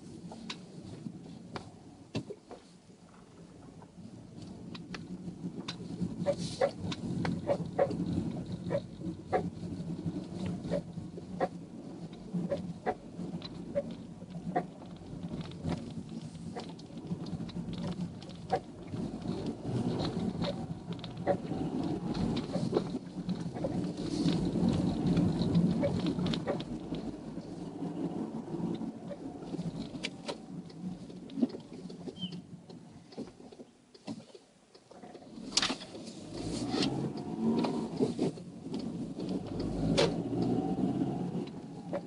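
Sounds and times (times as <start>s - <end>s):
car engine running: 5.2s - 31.9s.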